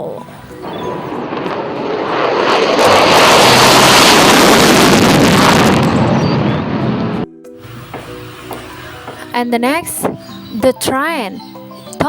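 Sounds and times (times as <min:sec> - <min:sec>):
jet fighter roaring: 0:00.3 - 0:08.4.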